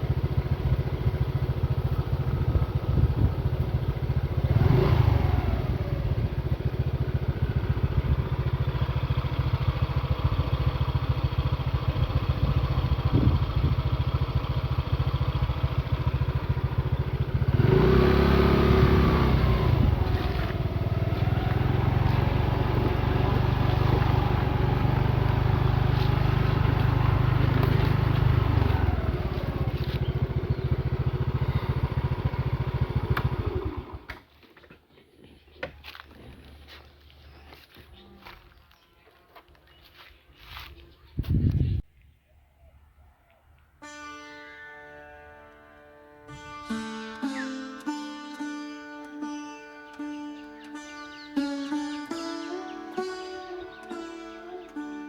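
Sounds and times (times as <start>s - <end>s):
motorcycle engine running: 0.0s - 34.6s, 46.3s - 55.0s.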